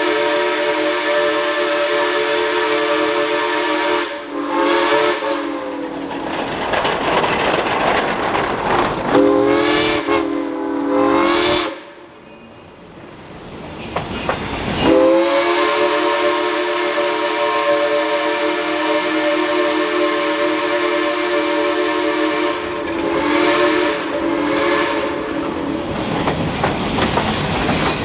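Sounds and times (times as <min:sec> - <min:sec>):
steam locomotive chime whistle: 0:00.0 - 0:06.0, 0:09.1 - 0:13.2, 0:14.7 - 0:25.6.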